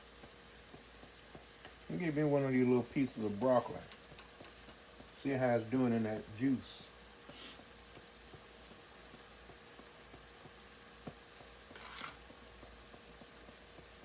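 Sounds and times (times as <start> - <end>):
food sizzling in a skillet: 0.0 - 14.0
soft hisses: 1.9 - 7.7
crackles and pops: 3.2 - 5.2.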